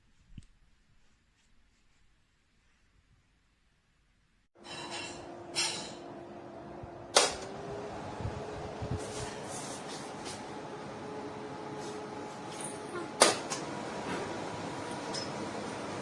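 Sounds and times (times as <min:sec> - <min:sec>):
fan whirring: 0:04.6 - 0:16.0
fan control clicks: 0:07.1 - 0:07.6.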